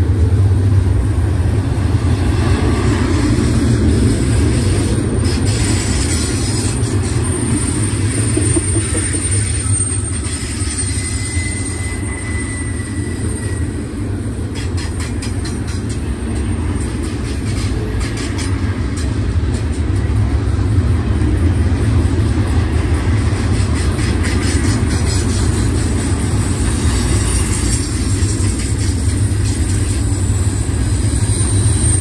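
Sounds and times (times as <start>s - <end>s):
steel wheels rumbling on rail: 0.0s - 32.0s
faint high wheel squeal: 5.3s - 16.8s, 24.6s - 32.0s.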